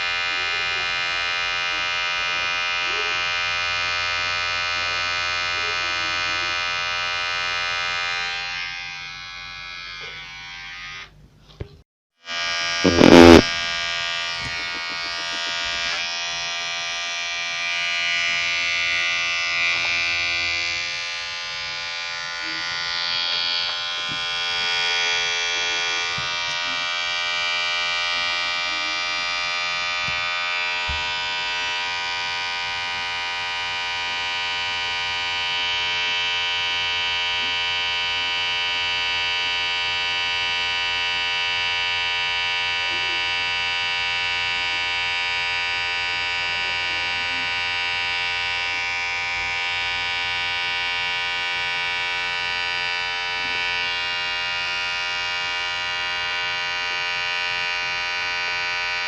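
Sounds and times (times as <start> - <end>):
electric hair clipper buzzing: 0.0 - 11.2, 12.2 - 59.0.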